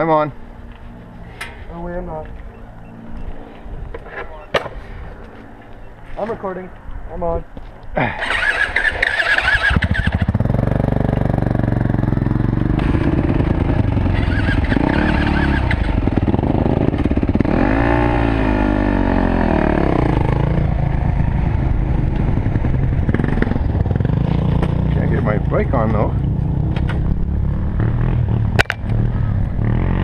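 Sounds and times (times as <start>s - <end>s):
dirt bike engine revving: 8.0s - 30.0s.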